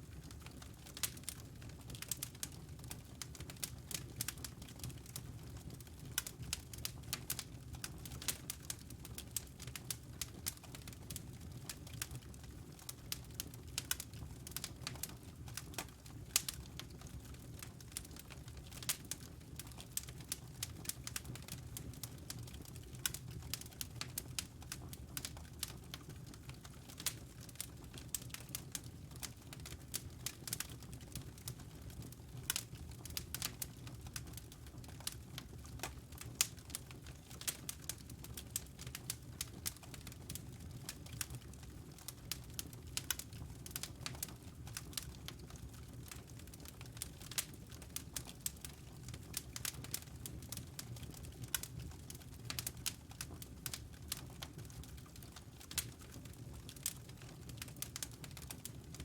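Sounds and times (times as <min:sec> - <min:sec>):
low rumble of burning logs: 0:00.0 - 0:59.0
wood fire crackling: 0:00.0 - 0:59.0
fire pops and snaps: 0:32.4 - 0:59.0.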